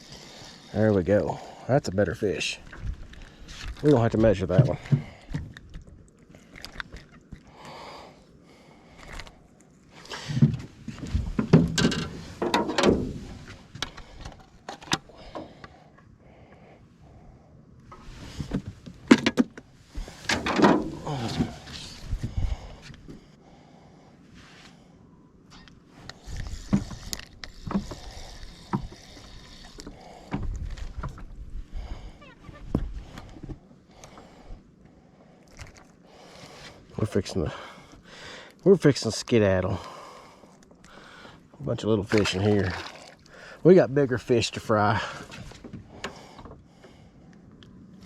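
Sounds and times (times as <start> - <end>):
knocks and bumps in a boat: 10.3 - 13.6.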